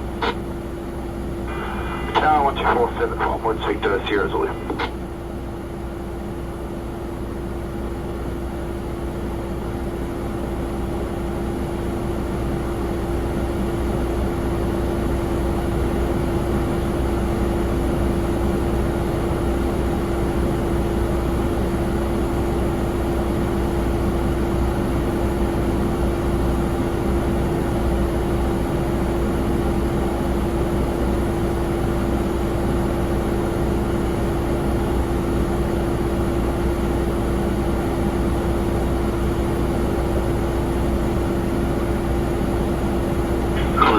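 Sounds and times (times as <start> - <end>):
mid-pitched jet whine: 0.0 - 0.5, 1.3 - 5.1, 43.3 - 43.9
faint high whine: 1.4 - 5.0, 43.4 - 43.9
jet engine rumble: 1.4 - 5.0.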